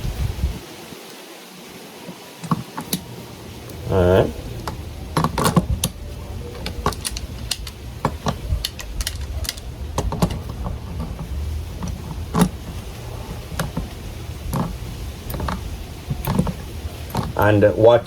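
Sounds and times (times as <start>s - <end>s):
steady low hum: 2.4s - 18.0s
pliers clicking on plastic nuts: 6.6s - 11.2s.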